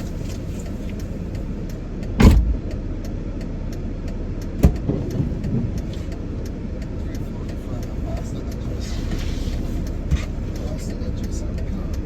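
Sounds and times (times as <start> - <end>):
minivan engine rumbling: 0.0 - 12.0
sharp knock: 2.2 - 2.7
heavy thump: 2.2 - 2.8.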